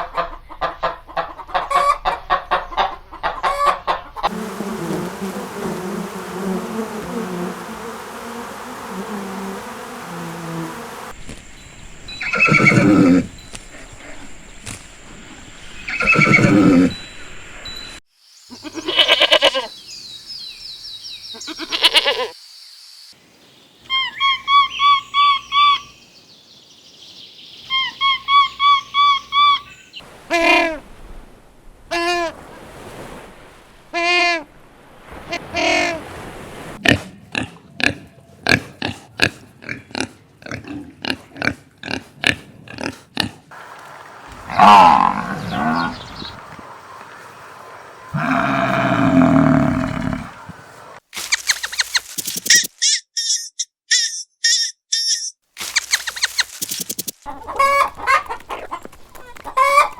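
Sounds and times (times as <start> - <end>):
farm animal calls: 12.2 - 14.2, 15.9 - 17.0, 18.5 - 19.7, 21.3 - 22.3, 23.9 - 26.0, 44.2 - 51.0, 57.3 - 59.9
quick sharp clicks: 55.6 - 57.2.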